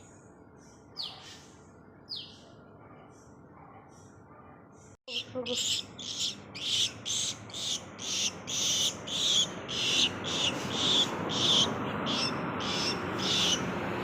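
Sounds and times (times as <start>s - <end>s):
faint low hum: 0.0s - 11.6s
bird chirping high: 0.6s - 2.6s, 5.1s - 13.8s.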